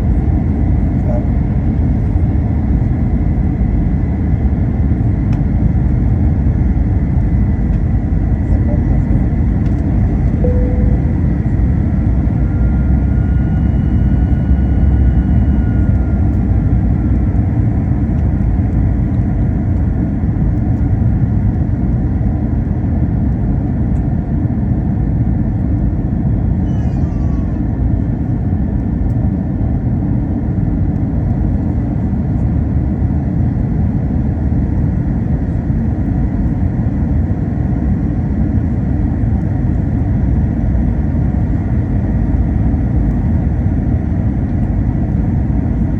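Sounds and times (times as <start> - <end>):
aircraft cabin engine rumble: 0.0 - 45.9
faint high whine: 8.4 - 17.4.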